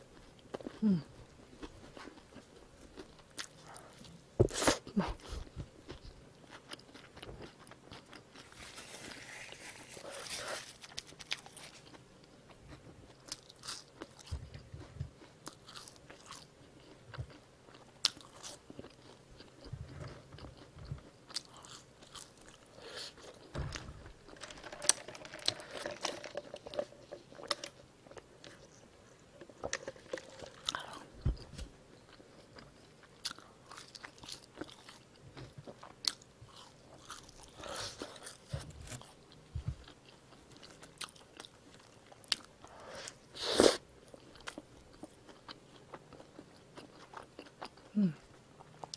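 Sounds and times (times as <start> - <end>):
person chewing: 0.1 - 48.9.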